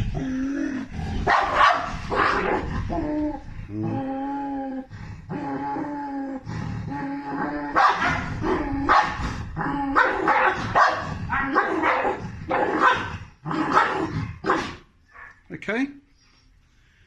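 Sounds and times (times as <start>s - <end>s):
dog barking harshly: 1.2s - 2.7s, 7.7s - 9.2s, 10.0s - 14.9s.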